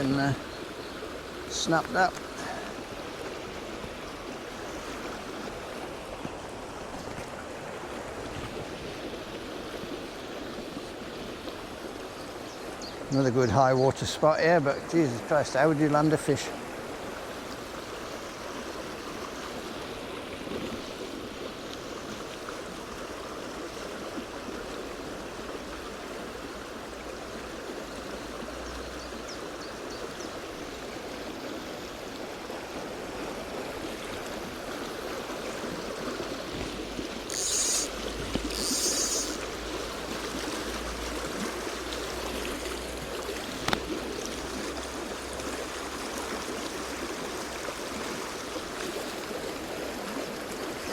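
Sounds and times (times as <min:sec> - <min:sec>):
stream rushing over rocks: 0:00.0 - 0:50.9
short hissing bursts: 0:37.3 - 0:39.6.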